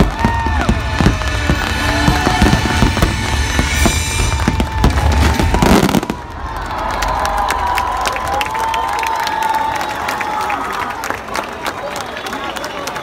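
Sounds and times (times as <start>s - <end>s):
fireworks bangs and crackles: 0.0s - 7.7s
loud show music: 0.2s - 6.0s.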